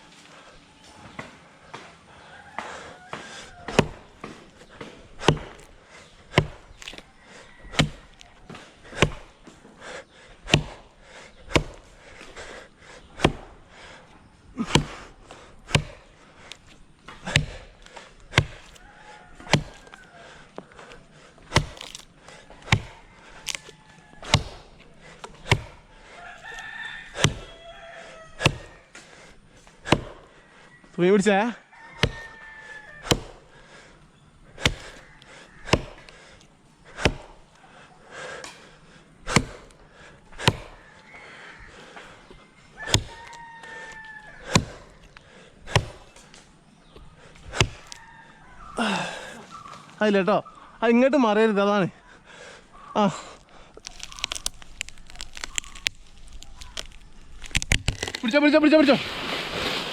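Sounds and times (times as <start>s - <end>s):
rooster crowing: 2.1s - 4.6s, 7.0s - 8.7s, 18.4s - 21.1s, 22.5s - 24.9s, 25.5s - 29.0s, 29.9s - 33.4s, 34.6s - 36.2s, 40.5s - 46.0s, 47.5s - 49.8s
blade chopping wood: 3.2s - 13.6s, 14.6s - 30.3s, 32.0s - 32.4s, 33.0s - 33.5s, 34.5s - 37.6s, 38.4s - 40.8s, 41.8s - 48.0s, 53.4s - 58.8s.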